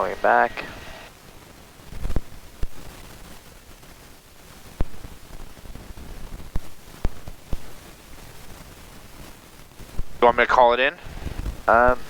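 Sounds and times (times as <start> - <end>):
headset intercom hiss: 0.0 - 1.2, 10.0 - 12.0.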